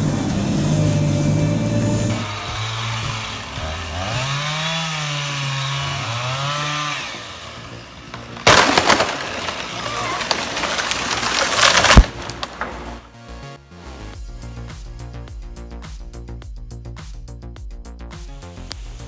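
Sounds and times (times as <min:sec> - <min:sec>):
chainsaw running under load: 0:00.1 - 0:08.2
tree crashing and cracking: 0:08.1 - 0:12.9.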